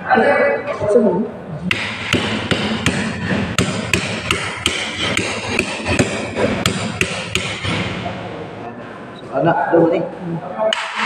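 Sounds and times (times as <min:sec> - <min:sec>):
hammer blows on metal: 0:01.7 - 0:08.1.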